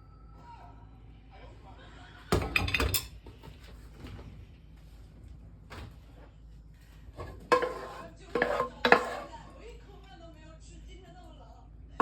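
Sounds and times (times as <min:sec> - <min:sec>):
low steady hum: 0:00.0 - 0:12.0
cookware clattering: 0:02.3 - 0:03.4, 0:07.2 - 0:09.4.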